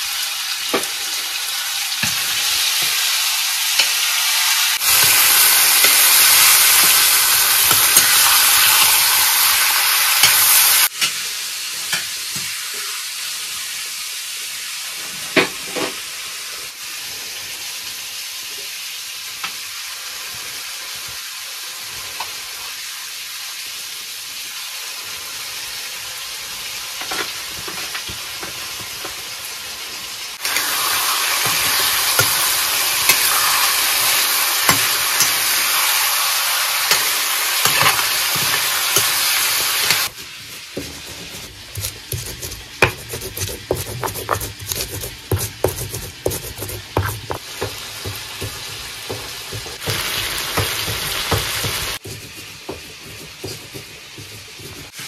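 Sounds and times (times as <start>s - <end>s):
food sizzling in hot oil: 0.0s - 55.0s
utensil scraping a pan: 30.4s - 35.8s, 36.8s - 55.0s.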